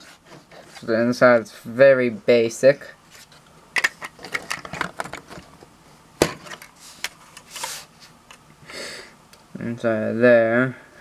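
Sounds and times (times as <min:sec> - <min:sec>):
plastic parts clicking and rattling: 0:03.8 - 0:05.6.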